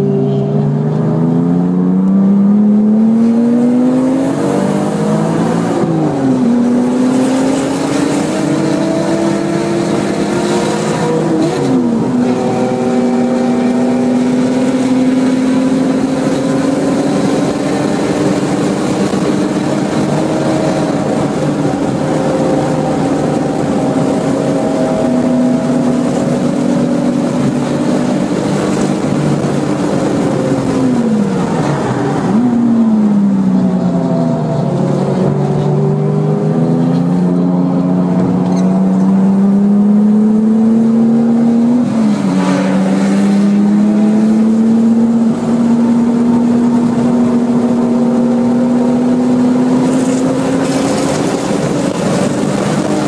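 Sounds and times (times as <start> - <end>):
car engine revving: 0.0 - 53.0.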